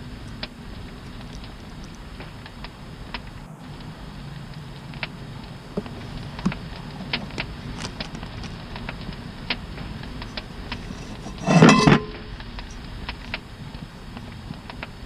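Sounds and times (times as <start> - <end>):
campfire crackling and popping: 0.0 - 11.5, 12.1 - 15.0
metallic clatter with ring: 10.7 - 12.8.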